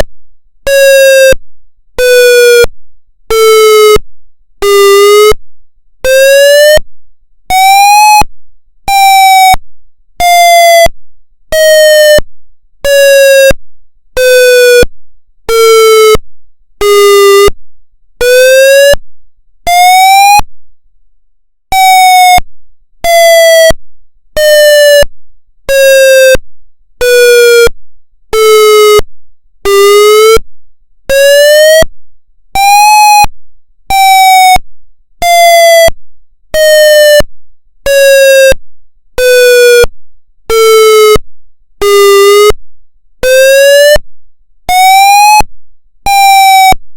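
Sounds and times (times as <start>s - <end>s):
pulsing wail siren: 7.5s - 8.3s, 8.9s - 9.6s, 11.5s - 12.2s, 16.9s - 17.5s, 19.7s - 20.4s, 21.7s - 22.4s, 32.6s - 33.3s, 33.9s - 34.6s, 35.2s - 35.9s, 36.6s - 37.2s, 43.2s - 44.0s, 44.7s - 45.5s, 46.1s - 46.8s.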